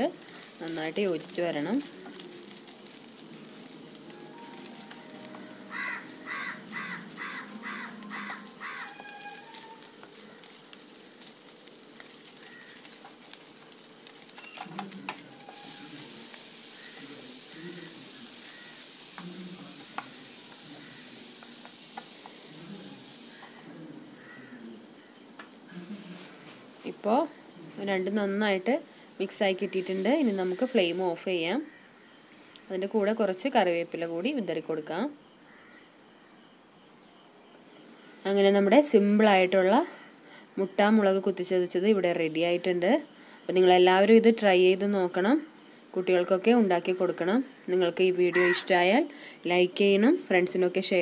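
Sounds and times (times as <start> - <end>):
food sizzling in a frying pan: 0.0 - 51.0
wooden spatula scraping a pan: 0.2 - 20.2
bird calling: 5.4 - 9.9, 48.3 - 48.7.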